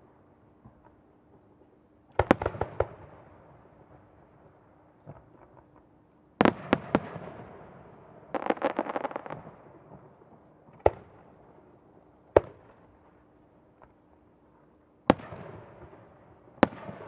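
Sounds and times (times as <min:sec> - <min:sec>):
crackling firework reports: 0:08.3 - 0:09.5.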